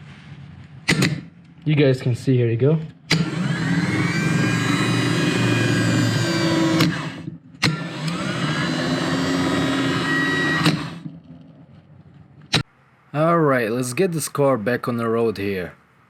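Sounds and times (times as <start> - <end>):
sharp click: 0.9 - 1.3
starter motor whine: 2.9 - 11.6.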